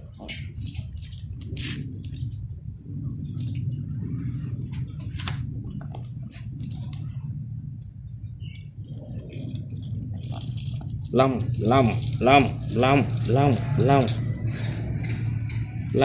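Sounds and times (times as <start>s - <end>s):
toys clicking and scraping: 0.0s - 2.3s, 4.7s - 7.3s, 8.5s - 16.0s
steady low rumble: 0.0s - 16.0s.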